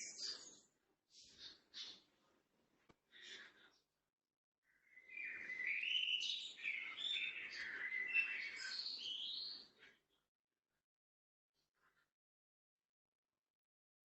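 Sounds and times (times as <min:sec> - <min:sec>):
wild birds chirping and singing: 0:00.0 - 0:02.4, 0:03.1 - 0:03.9, 0:04.7 - 0:10.1.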